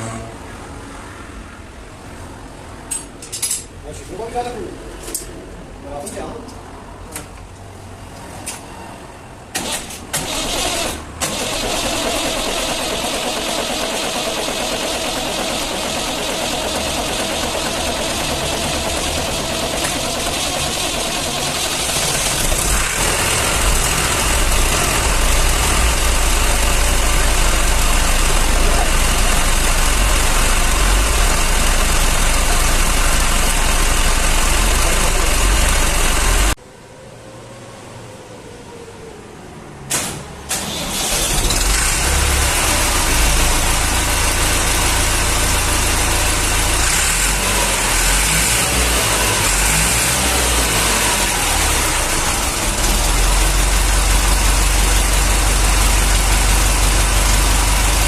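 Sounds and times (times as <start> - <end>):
tractor diesel engine cranking: 9.6 - 36.6, 40.5 - 45.2, 46.3 - 58.0
tractor diesel engine running: 9.6 - 36.6, 48.8 - 58.0.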